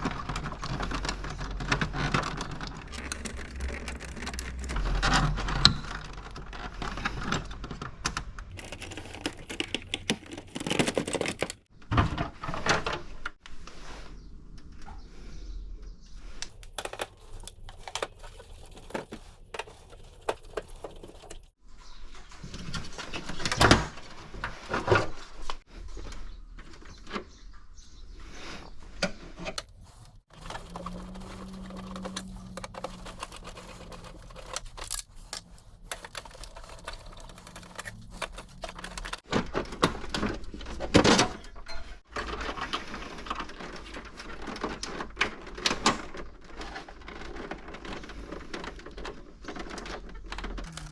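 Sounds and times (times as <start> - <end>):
plastic parts clicking and clattering: 0.0 - 13.4, 16.4 - 21.5, 29.4 - 50.9.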